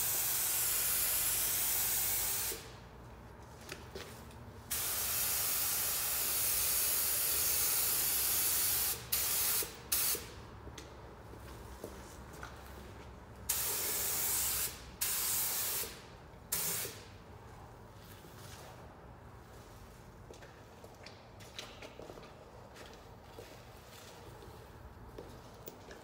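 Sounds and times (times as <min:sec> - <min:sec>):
paint spray gun hissing: 0:00.0 - 0:02.7, 0:04.7 - 0:10.3, 0:13.5 - 0:17.0.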